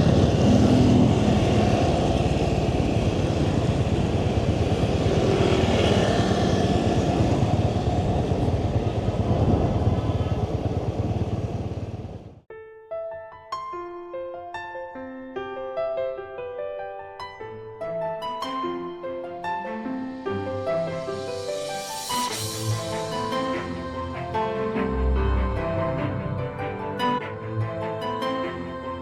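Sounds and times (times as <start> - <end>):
motorbike engine running: 0.0 - 12.4
wind and road noise: 0.0 - 12.5.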